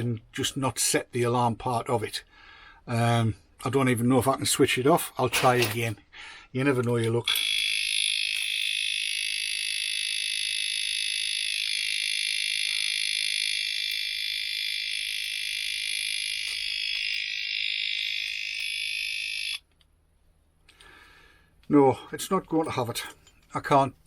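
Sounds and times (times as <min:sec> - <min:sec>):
high-pitched electronic alarm: 0:07.3 - 0:19.7.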